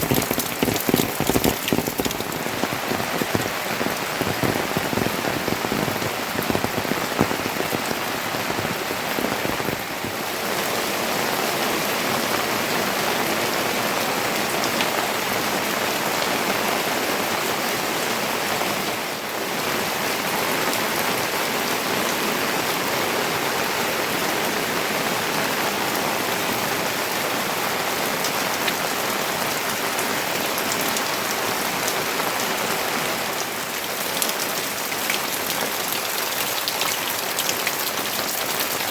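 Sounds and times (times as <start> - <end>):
raindrops pattering: 0.0 - 13.1, 24.0 - 38.9
rain falling: 0.0 - 38.9.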